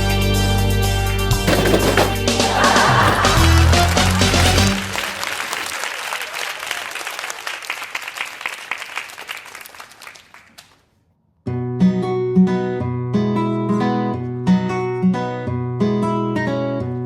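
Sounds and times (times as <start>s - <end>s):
audience clapping: 2.4s - 10.8s.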